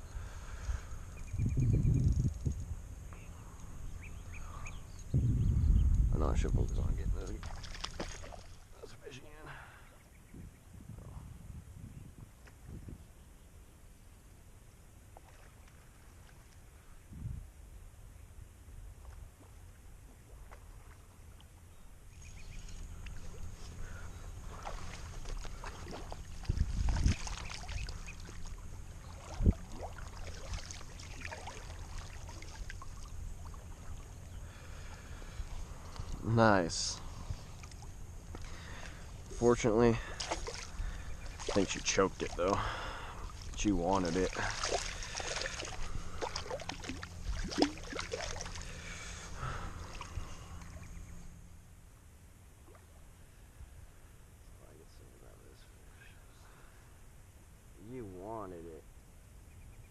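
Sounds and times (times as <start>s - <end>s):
steady low rumble: 0.0s - 7.6s, 15.9s - 58.2s
river water splashing: 7.3s - 10.0s, 14.9s - 16.9s, 18.9s - 53.5s.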